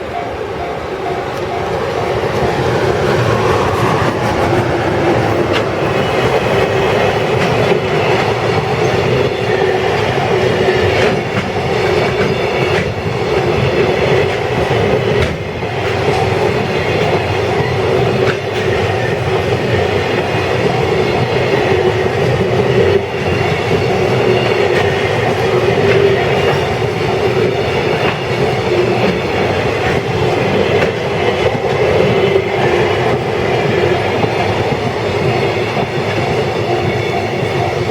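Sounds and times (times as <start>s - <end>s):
freight train wagons rumbling: 0.0s - 37.9s
wheels clacking over rail joints: 0.6s - 37.9s.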